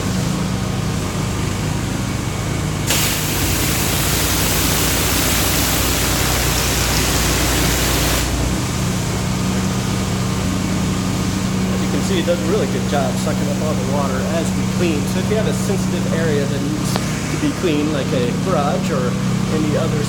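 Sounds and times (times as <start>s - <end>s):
pressure washer humming: 0.0s - 20.0s
high-pressure water spray hiss: 2.9s - 8.6s.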